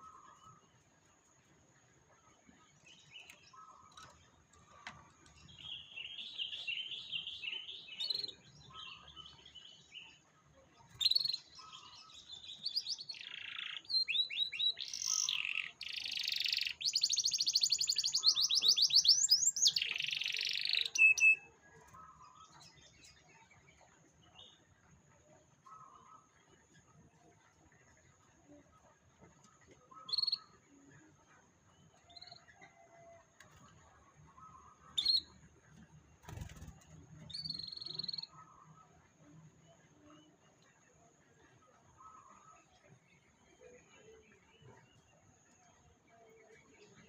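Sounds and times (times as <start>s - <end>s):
canary singing: 10.9s - 21.5s, 29.8s - 30.6s, 34.4s - 39.0s.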